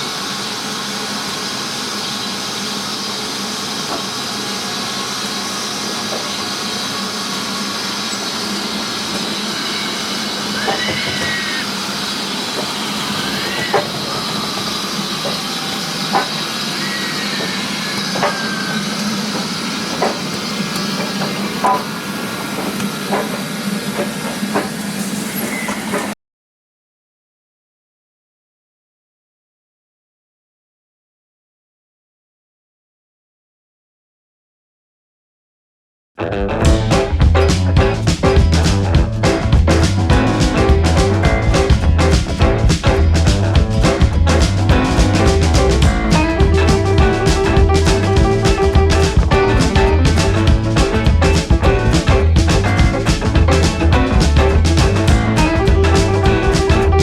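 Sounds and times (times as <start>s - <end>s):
steam locomotive hissing: 0.0s - 26.1s.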